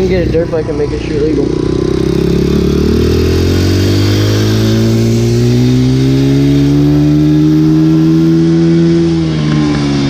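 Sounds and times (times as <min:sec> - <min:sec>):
dirt bike engine running: 0:00.0 - 0:10.0.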